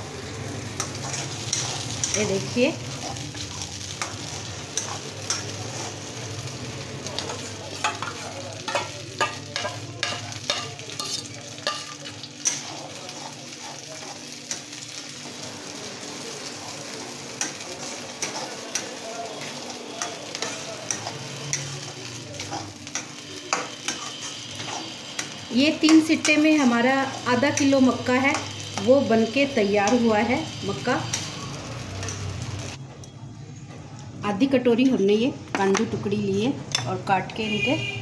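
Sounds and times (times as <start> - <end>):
corn paste sizzling in ghee: 0.0 - 32.8
spatula scraping a metal pan: 7.3 - 14.2, 22.4 - 26.4.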